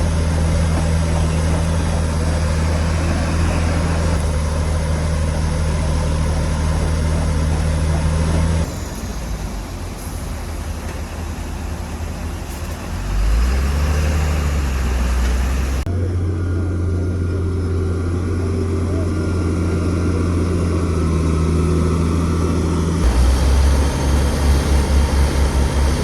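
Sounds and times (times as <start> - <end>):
heavy diesel engines droning: 0.0 - 26.0
engine revving: 12.9 - 26.0.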